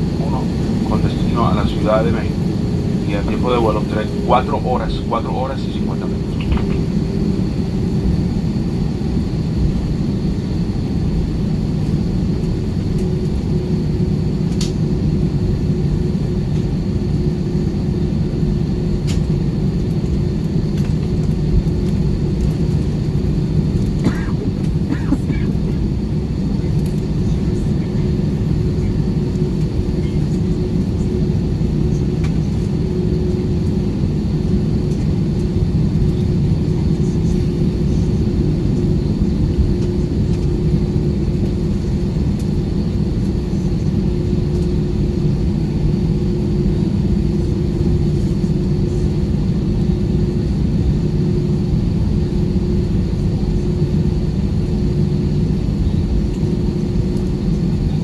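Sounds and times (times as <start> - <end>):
faint high whine: 0.0 - 7.7
aircraft cabin engine rumble: 0.0 - 58.0.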